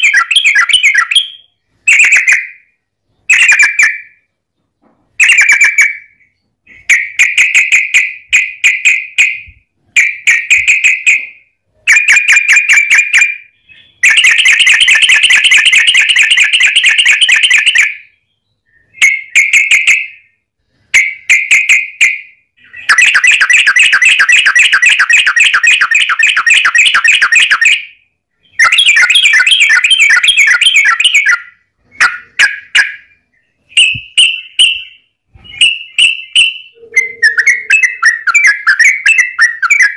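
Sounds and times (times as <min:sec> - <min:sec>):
bird singing chattering phrases: 0:22.6 - 0:24.7, 0:28.4 - 0:39.9.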